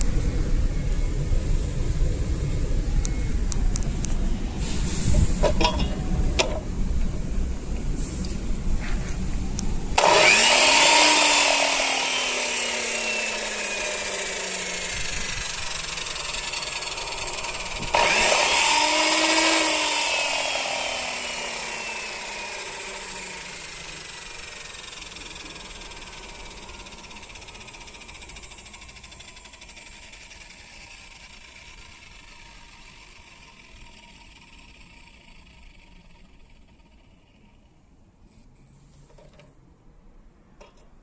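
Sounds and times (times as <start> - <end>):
cutter spinning up and winding down: 10.0 - 38.0.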